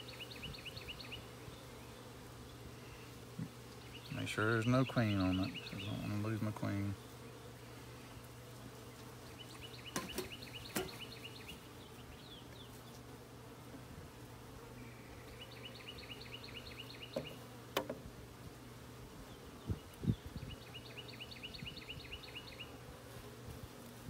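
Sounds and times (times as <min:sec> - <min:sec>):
bird chirping: 0:00.0 - 0:03.1, 0:03.7 - 0:06.4, 0:09.2 - 0:13.0, 0:14.8 - 0:17.4, 0:19.2 - 0:22.8
honeybees humming: 0:00.0 - 0:24.0.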